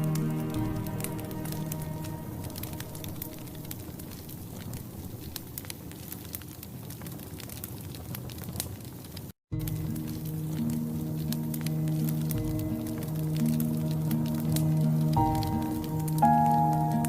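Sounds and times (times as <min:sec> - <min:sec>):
music: 0:00.0 - 0:04.2, 0:09.5 - 0:17.0
wood fire crackling: 0:00.0 - 0:17.0.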